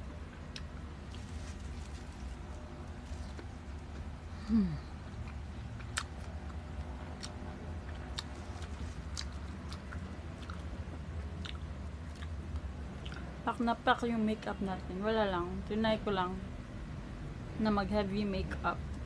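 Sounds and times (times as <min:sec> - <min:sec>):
person chewing crunchy fruit: 0:00.0 - 0:13.4
electric fan hum: 0:00.0 - 0:19.0.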